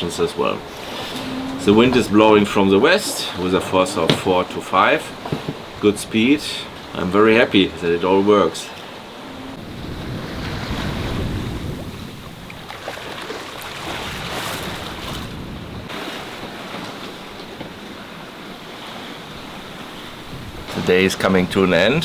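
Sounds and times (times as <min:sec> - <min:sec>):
water rushing past hull: 0:00.0 - 0:22.0
wind buffeting microphone: 0:00.0 - 0:22.0.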